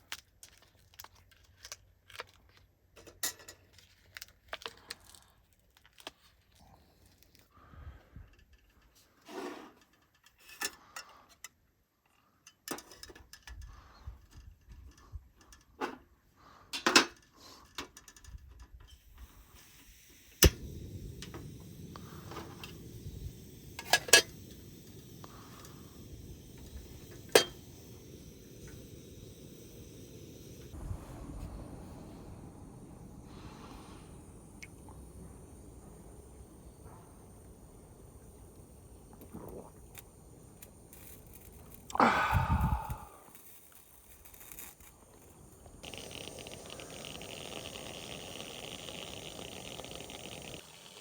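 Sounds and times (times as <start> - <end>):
low rushing noise: 20.5 - 37.9.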